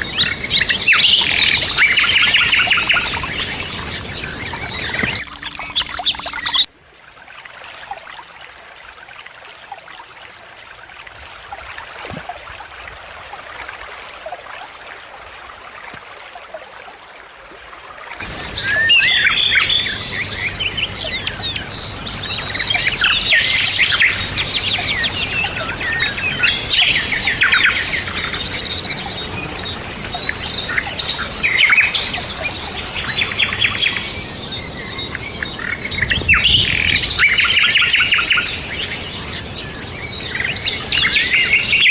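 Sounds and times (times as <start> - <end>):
birds chirping and twittering: 0.0 - 6.7, 18.2 - 41.9.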